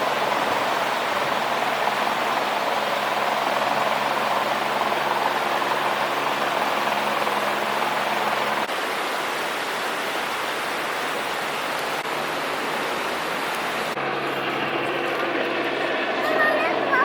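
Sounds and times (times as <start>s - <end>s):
running water rushing: 0.0s - 16.9s
low engine-like hum: 13.9s - 17.0s.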